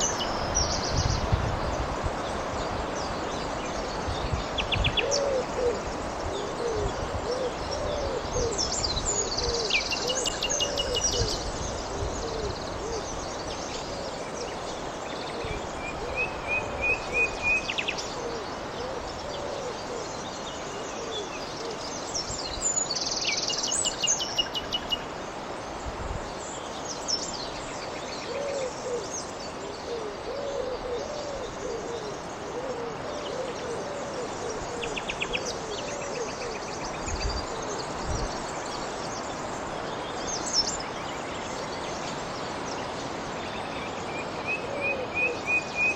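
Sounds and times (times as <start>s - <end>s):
low hooting bird call: 28.2s - 36.7s.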